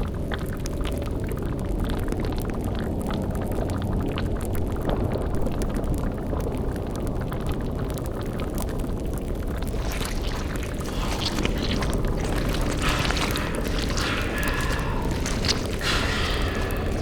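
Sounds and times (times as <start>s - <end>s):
deep rumble: 9.6s - 17.0s
fine crackling: 9.6s - 17.0s.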